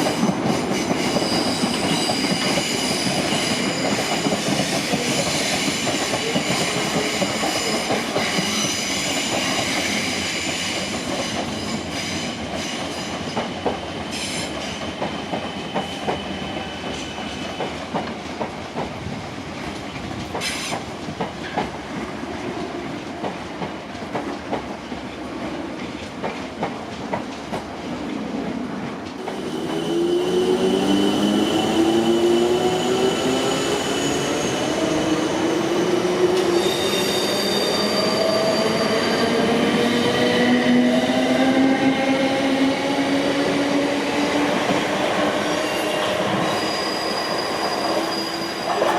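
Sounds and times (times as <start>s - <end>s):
train wheels squealing: 0.0s - 17.9s, 20.4s - 21.6s, 29.4s - 48.9s
train accelerating rising tones: 29.2s - 48.9s.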